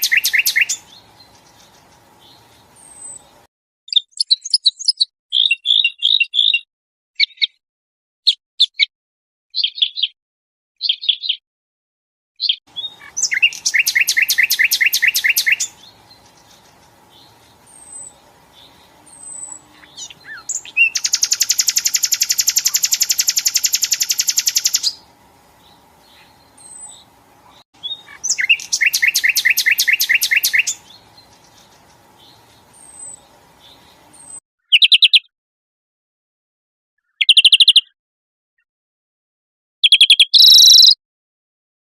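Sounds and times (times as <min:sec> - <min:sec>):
short bird chirps: 0:00.0 - 0:03.3, 0:03.9 - 0:07.6, 0:09.6 - 0:10.2, 0:10.8 - 0:11.4, 0:12.4 - 0:25.0, 0:26.1 - 0:35.3, 0:37.0 - 0:38.0, 0:39.8 - 0:41.0
songbird trilling: 0:00.0 - 0:03.3, 0:03.9 - 0:06.6, 0:12.5 - 0:35.3, 0:37.1 - 0:37.9, 0:39.8 - 0:41.0
faint steady hum: 0:00.0 - 0:03.5, 0:12.7 - 0:34.4.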